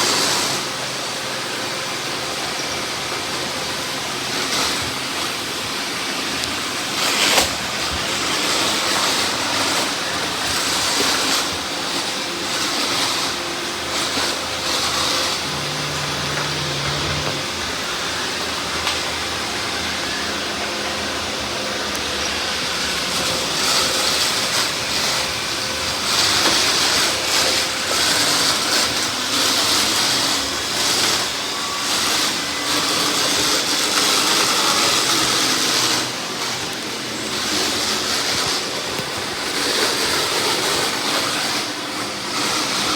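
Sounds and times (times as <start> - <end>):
robot vacuum cleaner running: 0.0 - 42.9.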